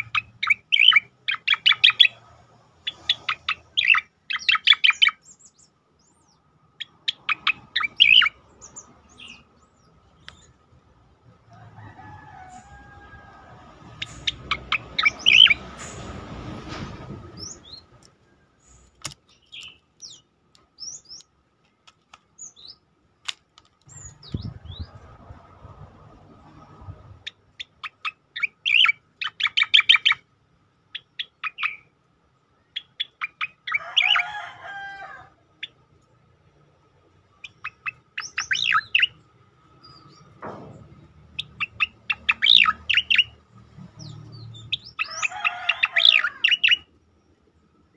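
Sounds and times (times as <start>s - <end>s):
bird singing rapid high notes: 2.9s - 10.5s, 14.0s - 15.6s, 37.4s - 39.2s, 41.3s - 43.4s.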